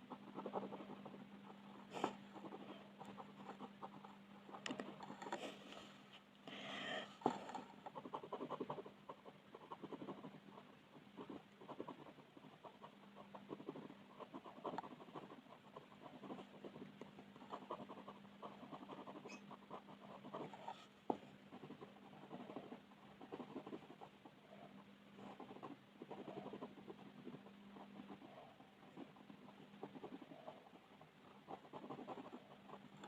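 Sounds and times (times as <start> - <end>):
colouring strokes on paper: 0.0 - 33.0
faint steady hum: 0.0 - 33.0.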